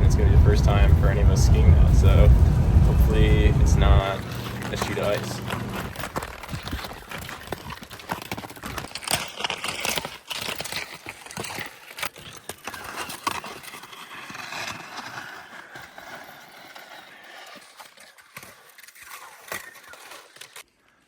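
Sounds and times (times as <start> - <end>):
footsteps crunching on snow: 0.0 - 9.0.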